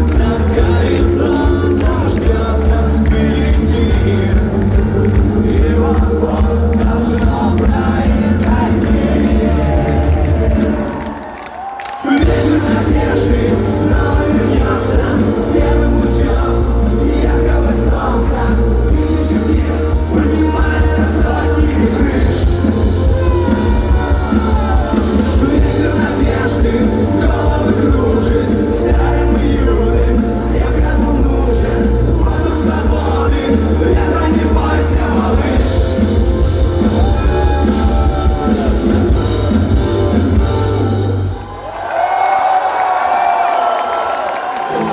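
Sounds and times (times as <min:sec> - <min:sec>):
bass guitar: 0:00.0 - 0:11.0, 0:12.2 - 0:41.4
punk rock band playing: 0:00.0 - 0:11.1, 0:12.1 - 0:41.5
person singing: 0:00.0 - 0:11.3, 0:11.9 - 0:39.8
drums with cymbal hits: 0:12.2 - 0:41.2.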